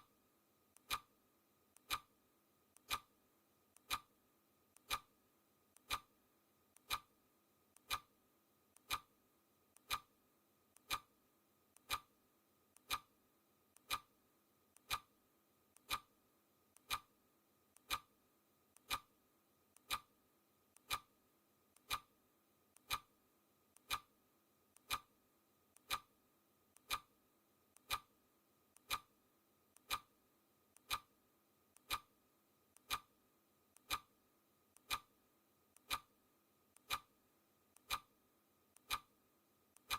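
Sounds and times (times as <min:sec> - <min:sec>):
clock ticking: 0:00.8 - 0:01.1, 0:01.8 - 0:02.1, 0:02.7 - 0:03.1, 0:03.7 - 0:04.1, 0:04.7 - 0:05.1, 0:05.7 - 0:06.1, 0:06.7 - 0:07.1, 0:07.7 - 0:08.1, 0:08.7 - 0:09.1, 0:09.7 - 0:10.1, 0:10.7 - 0:11.1, 0:11.7 - 0:12.1, 0:12.7 - 0:13.1, 0:13.7 - 0:14.1, 0:14.7 - 0:15.1, 0:15.7 - 0:16.1, 0:16.7 - 0:17.1, 0:17.7 - 0:18.1, 0:18.7 - 0:19.1, 0:19.7 - 0:20.1, 0:20.7 - 0:21.1, 0:21.7 - 0:22.1, 0:22.7 - 0:23.1, 0:23.7 - 0:24.1, 0:24.7 - 0:25.1, 0:25.7 - 0:26.1, 0:26.7 - 0:31.1, 0:31.8 - 0:33.2, 0:33.8 - 0:38.1, 0:38.8 - 0:39.2.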